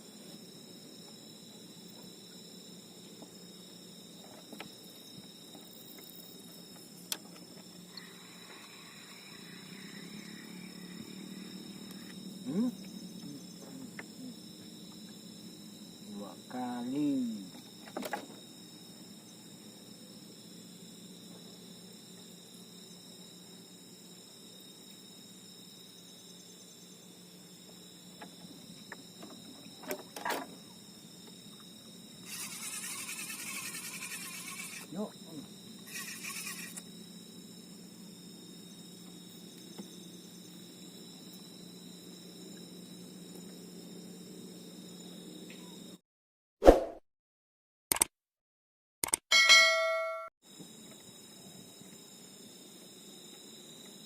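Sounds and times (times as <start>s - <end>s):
crickets chirping: 0.0s - 46.0s, 49.7s - 54.0s
night insects droning: 0.0s - 46.0s, 50.4s - 54.0s
rasping pulsing noise: 32.2s - 35.0s, 35.9s - 36.8s
sharp click: 47.9s - 48.1s, 49.0s - 49.2s.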